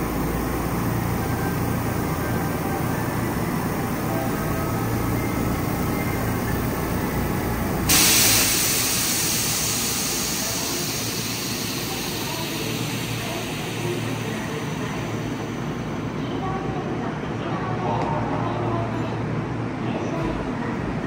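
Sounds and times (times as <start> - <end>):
electric train rumbling: 0.0 - 19.7
loud hiss of air: 7.8 - 16.0.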